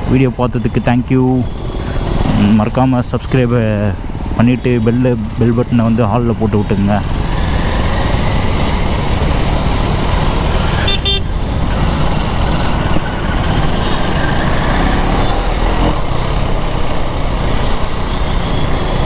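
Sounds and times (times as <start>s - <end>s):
motorcycle engine rumble: 0.0s - 19.0s
vehicle horn toot: 10.7s - 11.3s.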